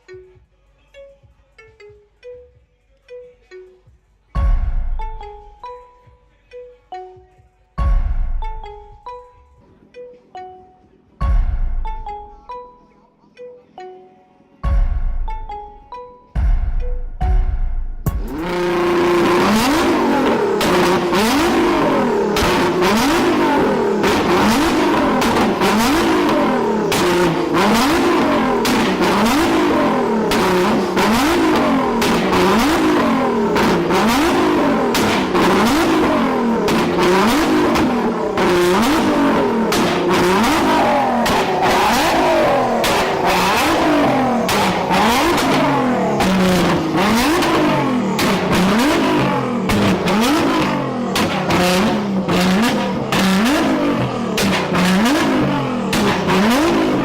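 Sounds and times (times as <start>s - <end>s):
car engine revving: 18.1s - 57.0s
exhaust crackles and pops: 18.2s - 57.0s.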